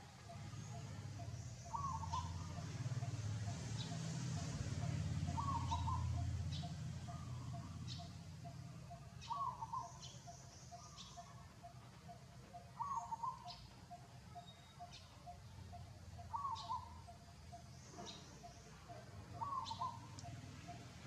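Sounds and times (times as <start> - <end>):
bird warbling call: 0.6 - 3.2, 3.8 - 20.8.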